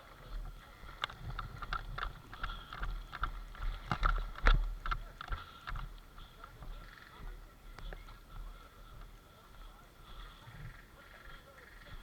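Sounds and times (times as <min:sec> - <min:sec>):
clothing and gear rustling: 0:00.0 - 0:06.5
footsteps walking: 0:00.0 - 0:10.6.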